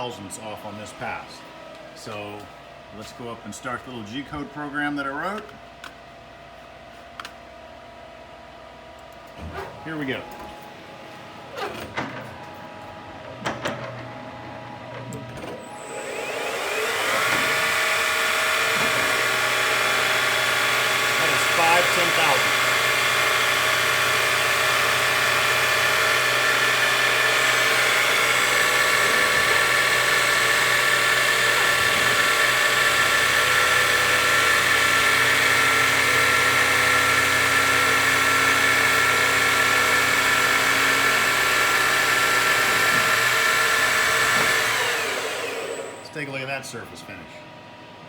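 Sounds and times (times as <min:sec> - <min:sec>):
milling machine spindle whine: 0:15.5 - 0:46.4.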